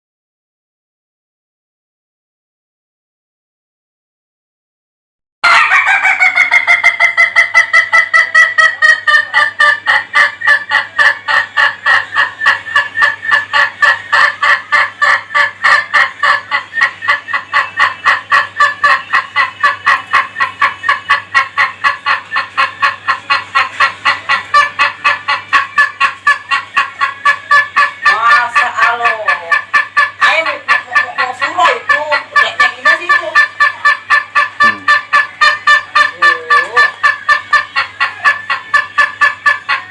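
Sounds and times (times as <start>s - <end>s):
rooster laughing crow: 5.4s - 8.9s.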